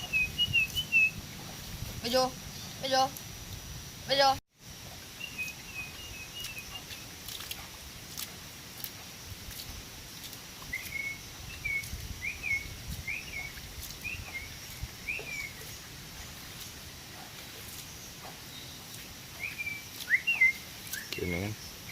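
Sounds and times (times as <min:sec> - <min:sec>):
bulbul chirping calls: 0:19.4 - 0:21.7.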